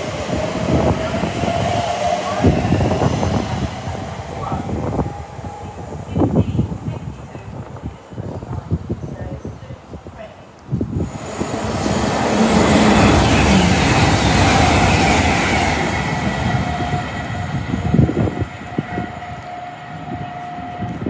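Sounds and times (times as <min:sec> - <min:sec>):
train rushing past: 0:00.0 - 0:08.5, 0:10.8 - 0:21.0
train whine dropping in pitch: 0:11.3 - 0:21.0.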